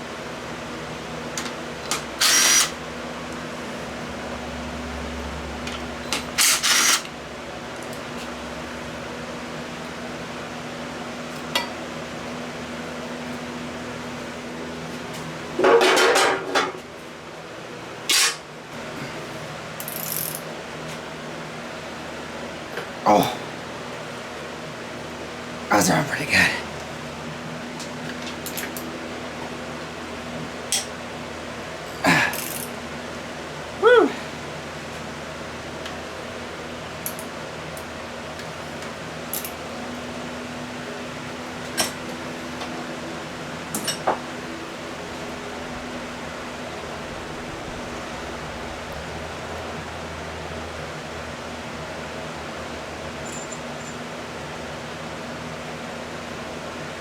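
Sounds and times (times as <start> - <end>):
background hiss and hum: 0.0 - 57.0
hand tools clicking on metal: 32.3 - 32.7.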